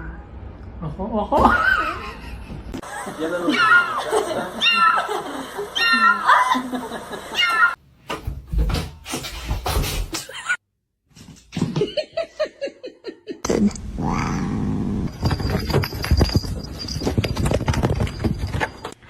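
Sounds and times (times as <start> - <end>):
background noise: 7.8 - 19.0.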